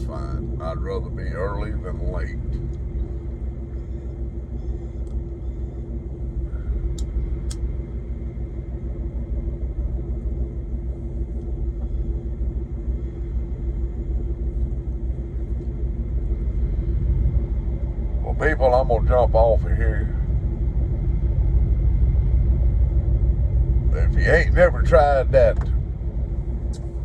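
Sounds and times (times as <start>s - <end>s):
diesel truck engine idling: 0.0s - 27.0s.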